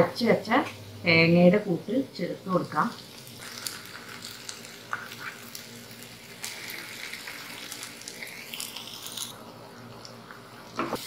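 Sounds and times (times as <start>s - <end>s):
food frying in oil: 2.2s - 11.0s.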